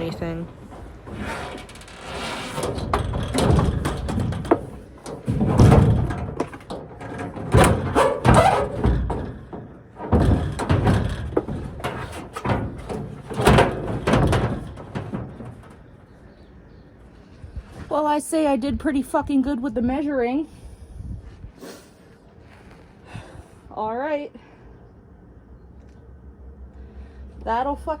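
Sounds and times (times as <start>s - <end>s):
rustling and scraping: 0.0s - 18.0s, 21.2s - 23.0s
clunks and bangs on metal box: 2.5s - 16.0s.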